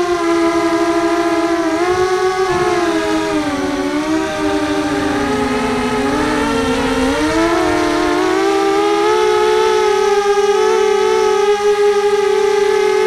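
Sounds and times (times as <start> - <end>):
quadcopter motors whining: 0.2 - 13.0.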